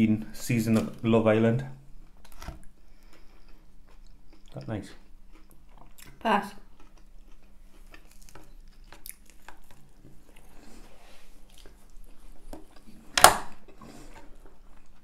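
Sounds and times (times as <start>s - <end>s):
chewing and biting food: 2.2s - 15.0s.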